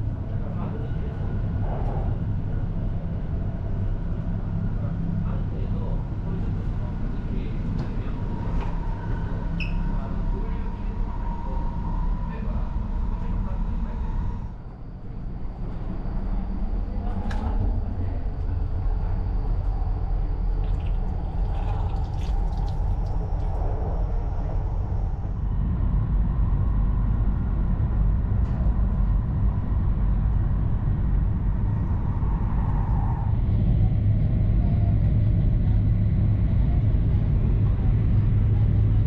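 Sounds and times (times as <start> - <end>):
train cabin rumble: 0.0 - 39.0.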